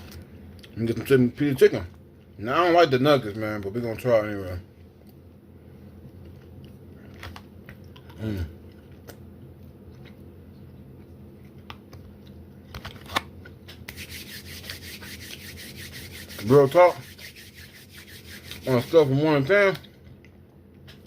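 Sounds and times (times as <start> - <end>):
person chewing crunchy food: 6.0 - 14.7
rubbing rustling noise: 13.9 - 19.5.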